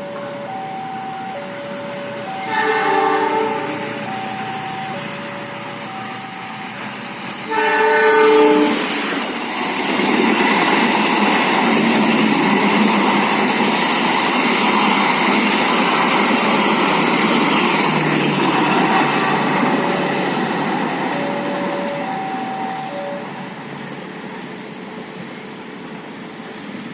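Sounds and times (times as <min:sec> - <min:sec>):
train passing on rails: 0:00.0 - 0:26.9
locomotive horn: 0:02.2 - 0:04.7, 0:07.4 - 0:08.9.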